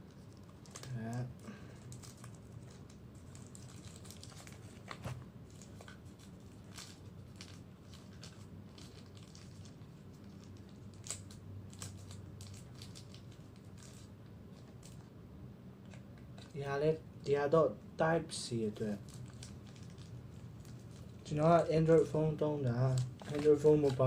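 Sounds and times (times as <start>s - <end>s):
packaging crinkling: 0.1s - 15.1s, 18.9s - 22.1s, 22.7s - 24.0s.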